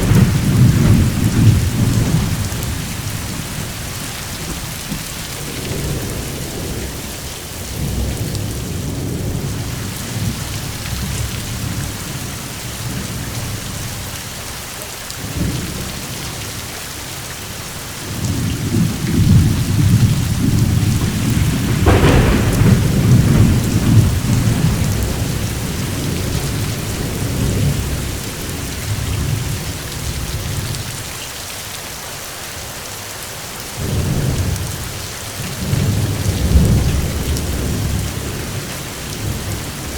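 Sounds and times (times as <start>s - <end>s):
sharp thunder crack: 0.0s - 6.9s, 18.2s - 28.3s
rolling thunder: 0.0s - 13.7s, 18.0s - 30.8s, 33.8s - 39.9s
steady rain: 0.0s - 39.9s.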